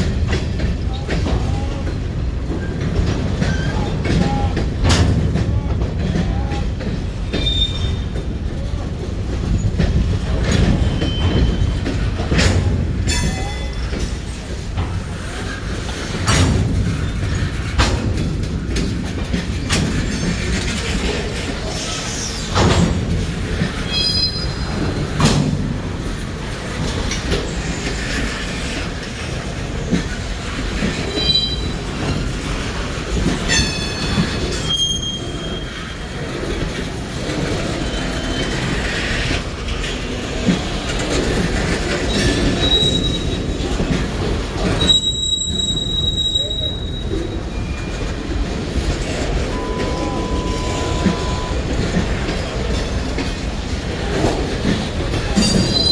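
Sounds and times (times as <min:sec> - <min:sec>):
train cars rumbling: 0:00.0 - 0:55.9
wheels clicking over rail joints: 0:00.0 - 0:55.9
high-pitched wheel squeals: 0:23.9 - 0:24.6, 0:33.6 - 0:35.8, 0:44.8 - 0:48.0, 0:49.4 - 0:51.8.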